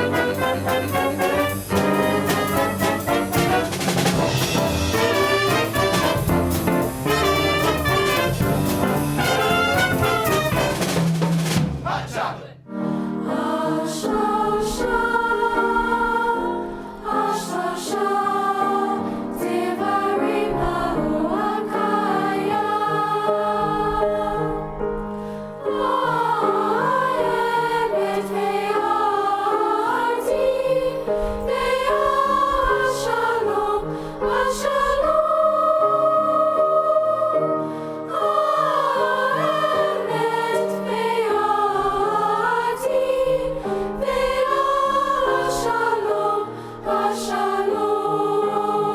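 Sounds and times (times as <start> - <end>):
choir singing: 0.0 - 11.0, 11.7 - 25.0, 25.6 - 48.9.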